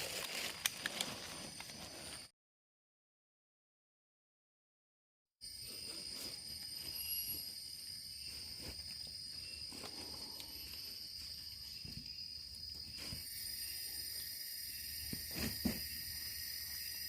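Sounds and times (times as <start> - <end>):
insects chirping chorus: 5.4 - 17.0.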